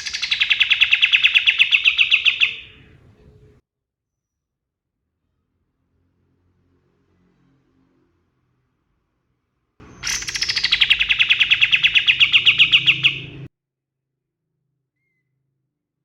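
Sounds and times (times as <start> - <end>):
bird rapid trill: 0.0 - 3.6, 9.8 - 13.5.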